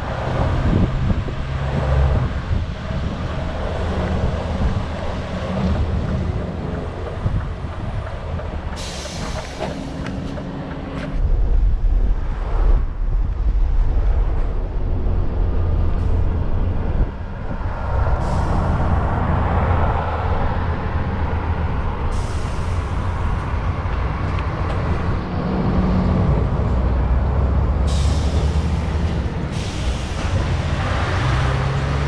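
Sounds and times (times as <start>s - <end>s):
compressed air hisses: 8.8s - 10.3s, 18.2s - 19.1s, 22.1s - 23.3s, 27.9s - 30.7s.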